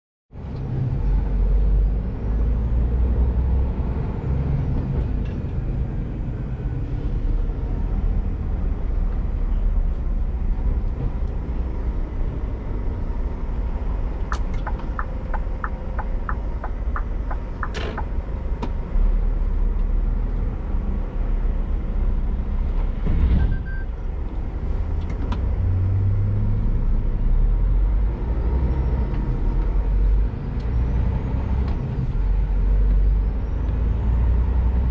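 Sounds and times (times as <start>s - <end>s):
diesel truck engine running: 5.8s - 20.2s
regular ticks: 14.3s - 18.1s.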